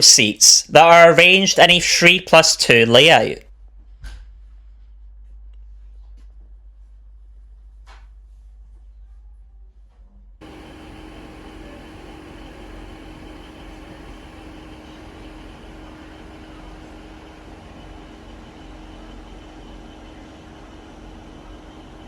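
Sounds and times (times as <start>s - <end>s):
train diesel engine idling: 0.0s - 3.4s, 10.4s - 22.0s.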